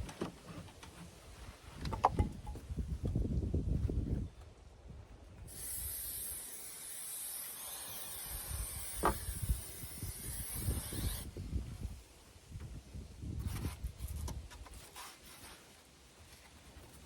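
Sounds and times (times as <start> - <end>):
aerosol can spraying: 5.5 - 11.2.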